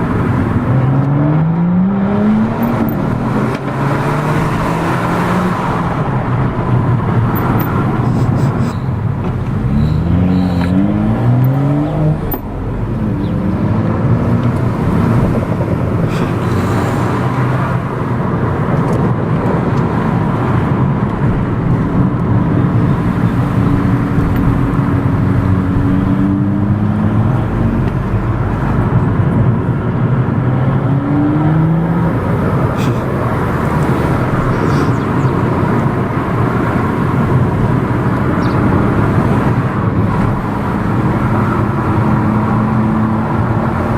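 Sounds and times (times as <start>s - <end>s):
car engine accelerating: 0.0s - 43.9s
road and wind noise: 0.0s - 43.9s.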